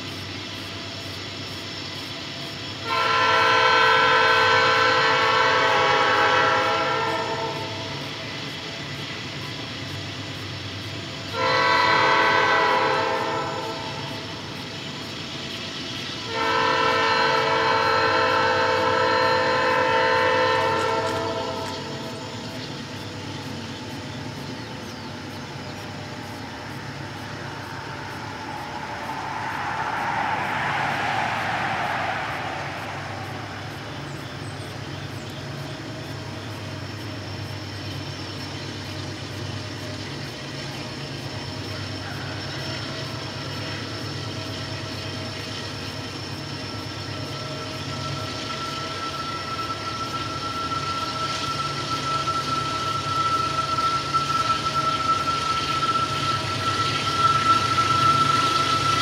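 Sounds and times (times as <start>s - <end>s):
diesel locomotive engine drone: 0.0s - 59.0s
thin steady whine: 0.0s - 59.0s
rushing noise: 25.8s - 36.6s.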